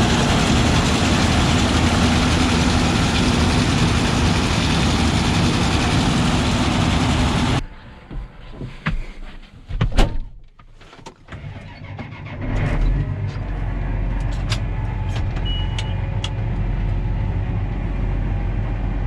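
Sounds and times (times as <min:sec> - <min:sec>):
vehicle engine running: 0:00.0 - 0:08.0, 0:13.0 - 0:19.0.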